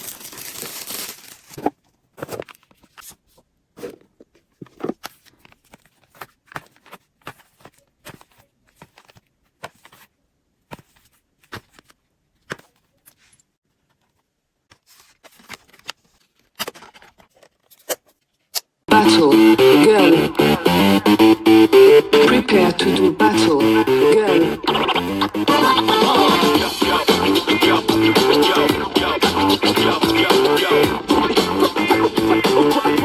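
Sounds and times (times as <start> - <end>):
packaging clicks and taps: 4.2 - 10.1.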